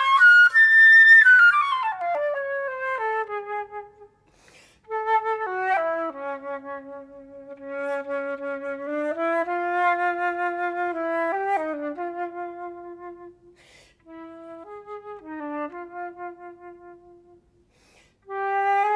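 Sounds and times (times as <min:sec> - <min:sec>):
solo flute melody: 0:00.0 - 0:17.6, 0:18.2 - 0:18.9
flute player breath: 0:04.2 - 0:04.9, 0:13.5 - 0:14.1, 0:17.6 - 0:18.3.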